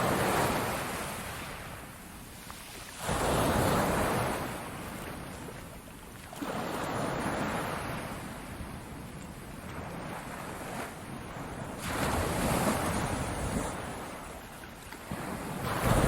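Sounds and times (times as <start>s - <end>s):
ocean waves breaking on shore: 0.0s - 16.0s.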